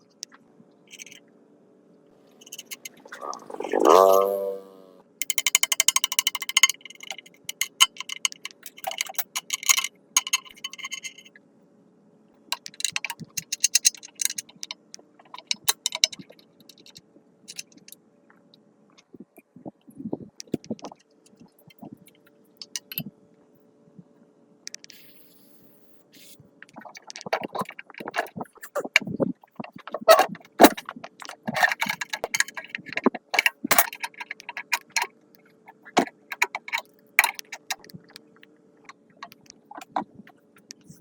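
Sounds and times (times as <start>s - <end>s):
rapid metallic ratcheting clicks: 0.9s - 1.2s, 2.4s - 4.4s, 5.2s - 11.3s, 12.5s - 18.0s, 29.8s - 35.1s, 35.7s - 38.2s
tools clinking on metal: 5.2s - 11.3s, 12.6s - 17.7s, 30.1s - 35.1s.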